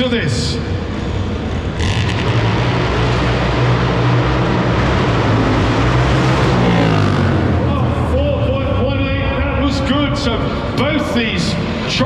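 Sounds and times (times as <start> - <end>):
motorcycle engine revving hard: 1.2 - 7.9.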